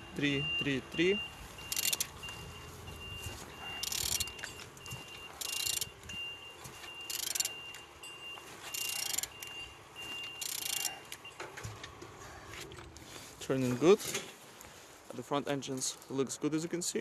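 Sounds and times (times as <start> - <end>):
short high electronic beeps: 0.0 - 4.4
engine turned by hand whooshing: 1.5 - 6.0, 8.6 - 9.7.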